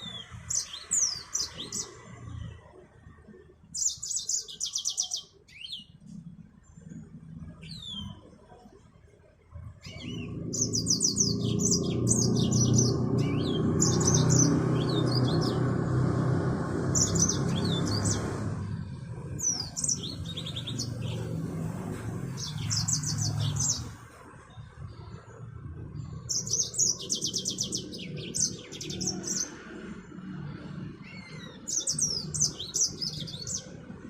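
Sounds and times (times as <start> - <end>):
finch singing: 0.0 - 2.0, 3.8 - 6.1, 9.8 - 15.7, 16.9 - 18.5, 19.3 - 24.0, 26.0 - 29.6, 31.0 - 33.8.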